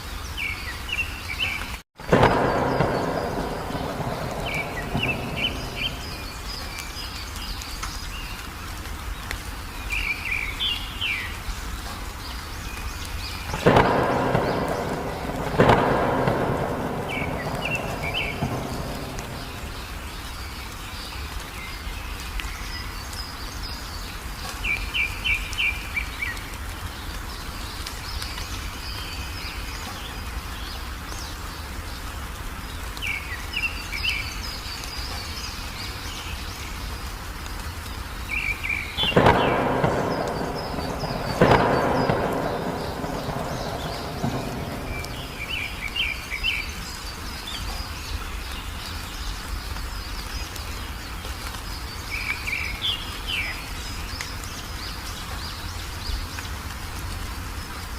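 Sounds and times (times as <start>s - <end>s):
songbird chirping: 0.0s - 57.2s
steady rain: 0.0s - 57.9s
thunderclaps rumbling: 2.0s - 7.6s, 13.2s - 21.0s, 38.4s - 47.8s.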